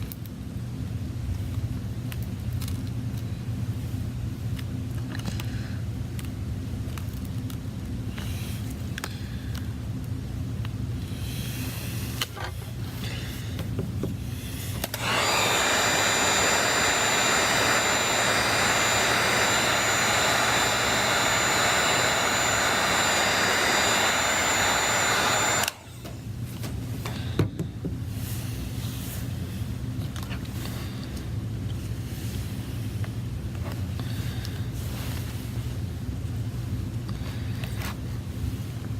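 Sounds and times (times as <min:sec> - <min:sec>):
electric blower whining: 0:14.7 - 0:26.2.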